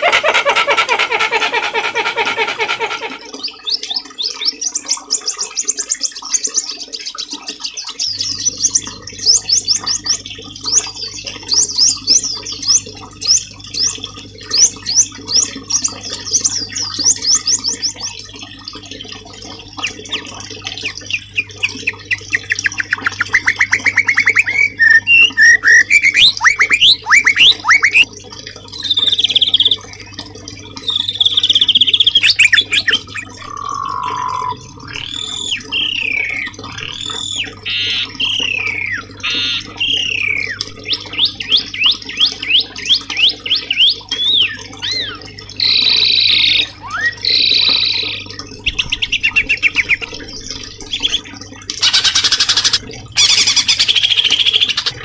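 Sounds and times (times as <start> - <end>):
songbird singing: 51.8 - 55.0.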